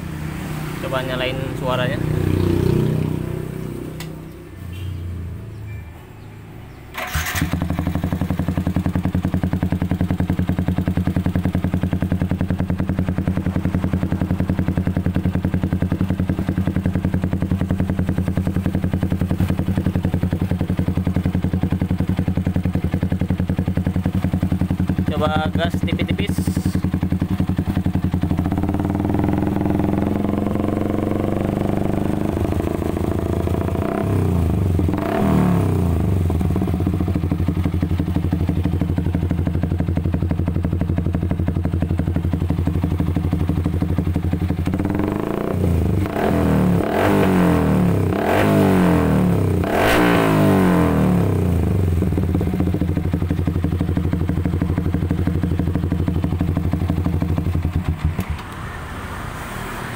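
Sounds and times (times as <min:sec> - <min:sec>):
motorcycle engine idling and revving: 0:00.0 - 0:59.9.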